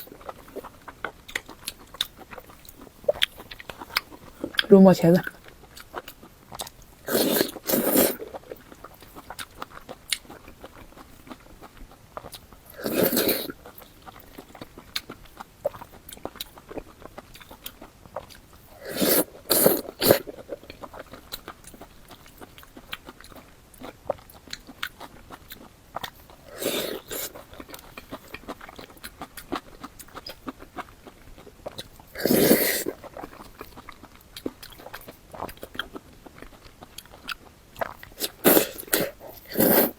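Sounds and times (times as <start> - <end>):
wet chewing: 0.0 - 39.9.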